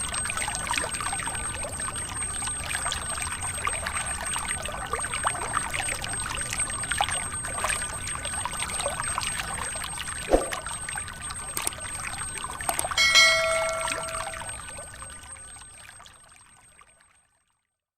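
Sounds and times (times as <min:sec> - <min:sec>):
brief metallic ring: 0:13.0 - 0:14.6.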